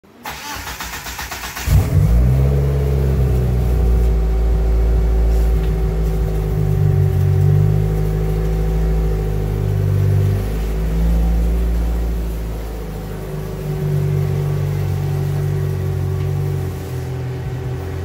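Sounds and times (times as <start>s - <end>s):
car starter cranking: 0.2s - 4.4s
car engine running: 1.6s - 18.0s.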